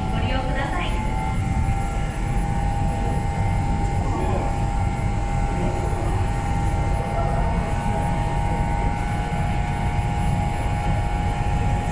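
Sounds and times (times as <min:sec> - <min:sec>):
ferry engine rumble and hum: 0:00.0 - 0:11.9.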